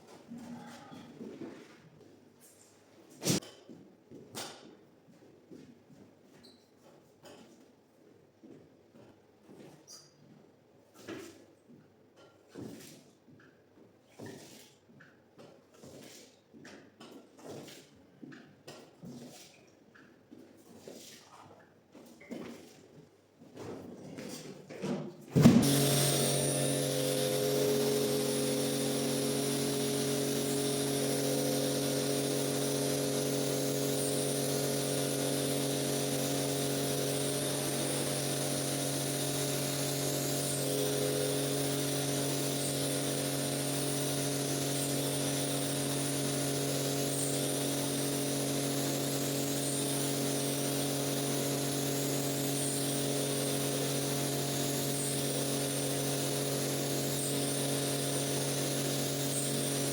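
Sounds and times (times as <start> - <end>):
electric motor humming: 25.4 - 59.9.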